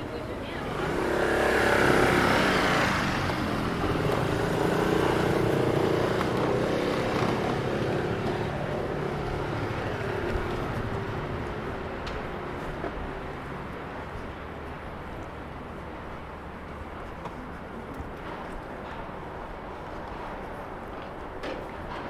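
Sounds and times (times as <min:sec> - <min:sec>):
vehicle passing: 0:00.0 - 0:12.4.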